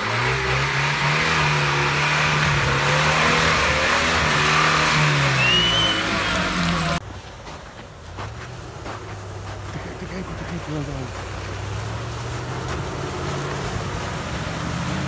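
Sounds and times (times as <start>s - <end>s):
engine revving hard: 0.0s - 7.0s, 11.6s - 15.0s
short high whistle: 5.2s - 6.5s.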